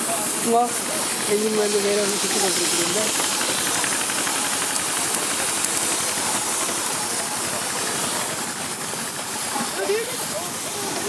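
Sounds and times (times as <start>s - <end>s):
steam hissing: 0.0s - 11.0s.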